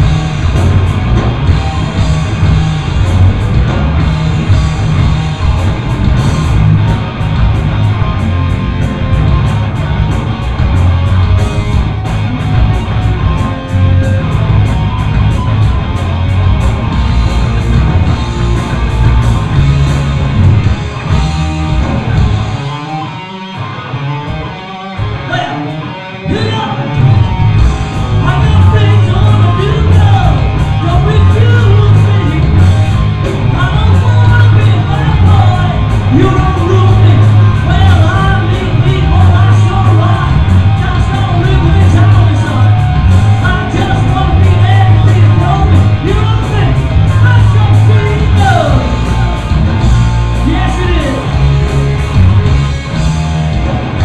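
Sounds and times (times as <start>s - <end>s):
bass guitar: 0.0s - 54.0s
distorted electric guitar: 0.0s - 54.0s
rock drums: 0.0s - 54.0s.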